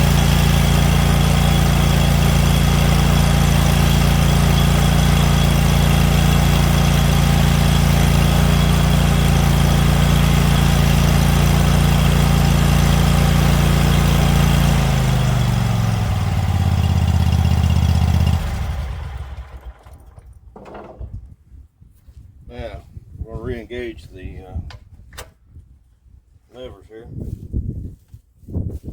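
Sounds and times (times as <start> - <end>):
mower engine running: 0.0 - 20.4.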